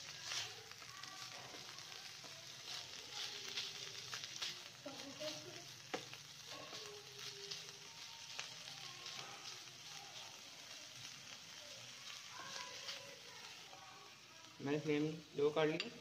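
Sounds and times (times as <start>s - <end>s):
chicken sizzling in oil: 0.0s - 16.0s
spatula scraping and tapping pan: 5.8s - 6.8s.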